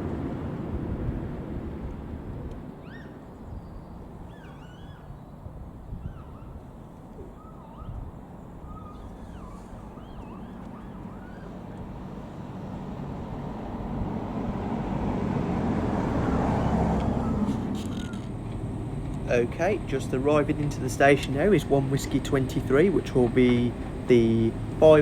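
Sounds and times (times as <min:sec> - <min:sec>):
diesel train approaching: 0:08.3 - 0:25.0.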